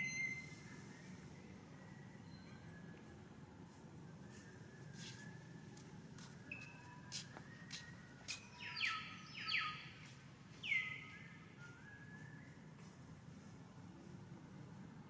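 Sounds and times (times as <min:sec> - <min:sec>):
thin whistled bird notes: 0:00.0 - 0:03.2, 0:06.5 - 0:13.1
loud downward-sweeping bird calls: 0:08.6 - 0:10.0.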